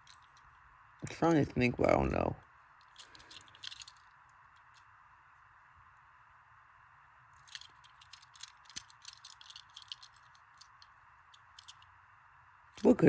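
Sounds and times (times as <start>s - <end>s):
toy car clicking and rattling: 0.0s - 0.5s, 2.8s - 4.9s, 7.4s - 11.9s
faint steady hiss: 0.0s - 13.0s.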